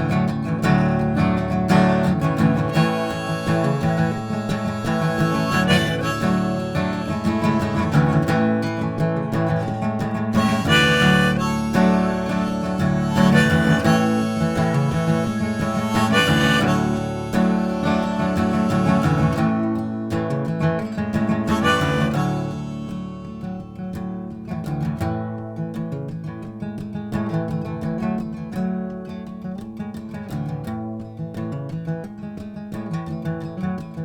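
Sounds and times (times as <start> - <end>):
strummed acoustic guitar: 0.0 - 34.0
harmonica playing: 0.8 - 20.3, 21.2 - 23.9.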